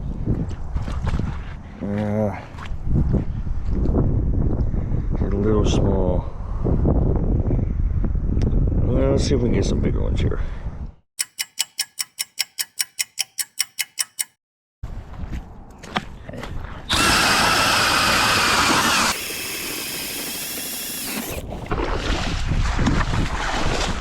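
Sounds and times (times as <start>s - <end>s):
even clicks: 11.2s - 14.4s
power ice auger drilling: 16.9s - 21.6s.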